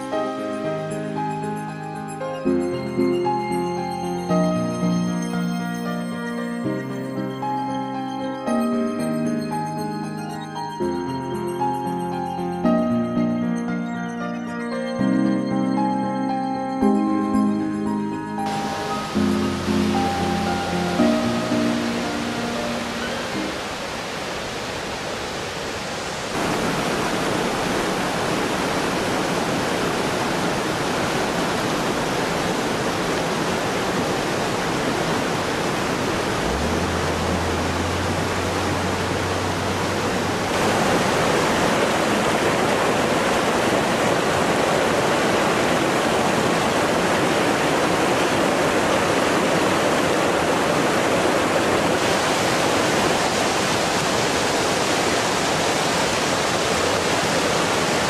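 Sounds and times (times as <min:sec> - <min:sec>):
rushing mountain torrent: 0:18.0 - 0:58.0.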